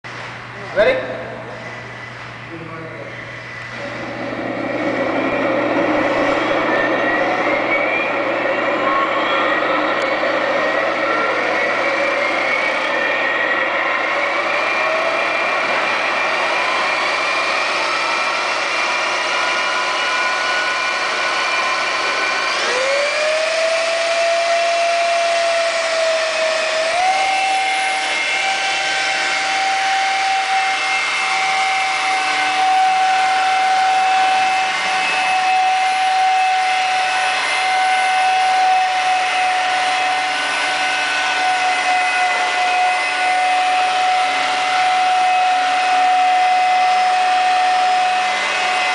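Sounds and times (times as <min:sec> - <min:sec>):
model helicopter motor whine: 0:03.4 - 0:48.9.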